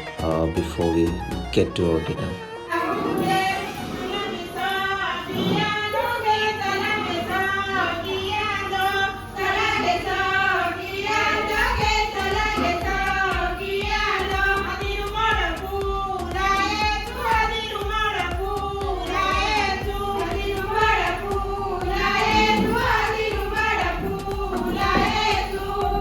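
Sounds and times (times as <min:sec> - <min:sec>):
high voices singing together: 0:02.7 - 0:26.0
low thuds: 0:11.5 - 0:26.0.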